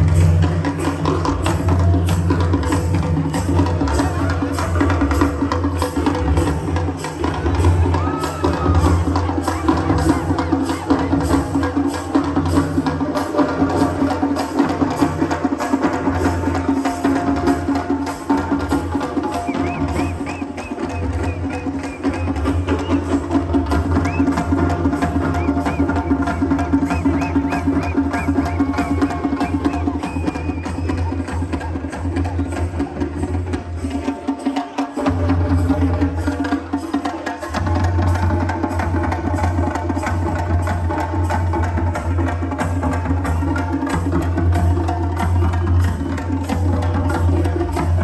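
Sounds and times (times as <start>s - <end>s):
steady percussion beat: 0.0s - 48.0s.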